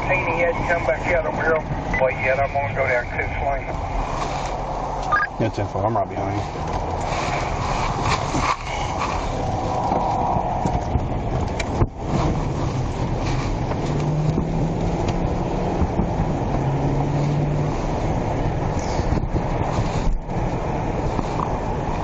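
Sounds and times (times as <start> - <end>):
car engine: 0.0 - 22.0
road noise: 0.0 - 22.0
wind noise: 6.4 - 22.0.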